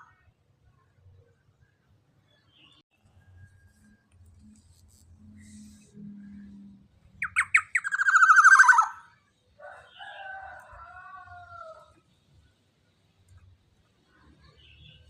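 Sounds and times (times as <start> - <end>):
nasal two-tone bird call: 7.2 - 9.1
rapid rattling bird trill: 7.2 - 9.2.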